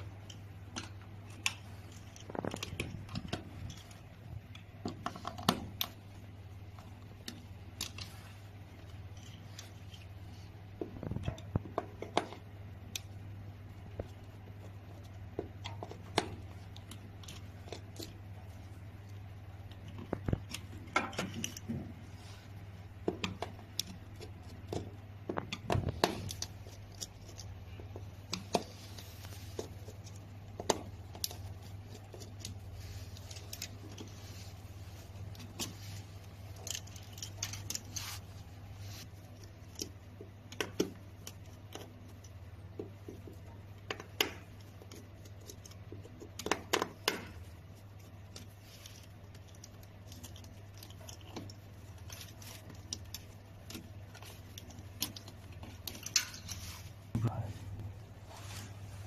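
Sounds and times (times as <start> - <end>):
steady low hum: 0.0 - 59.0
hand tools and metal parts clicking: 23.0 - 38.5, 39.2 - 56.9.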